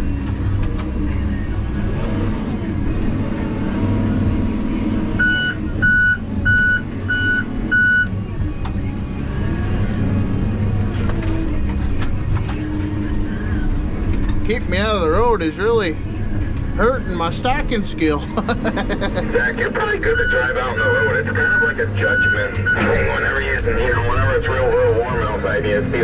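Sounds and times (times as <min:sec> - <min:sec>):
heavy machinery engine running: 0:00.0 - 0:26.0
backup alarm beeping: 0:05.2 - 0:08.1.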